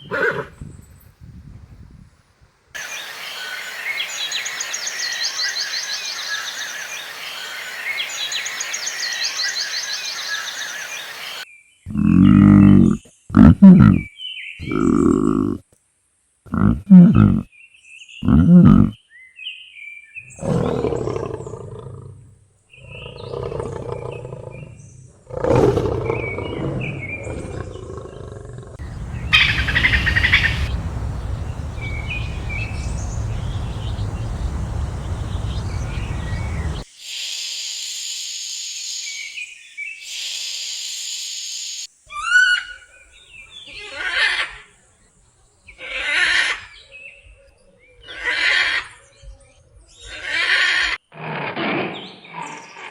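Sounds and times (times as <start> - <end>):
big cat roaring: 20.4 - 22.2, 22.8 - 36.8.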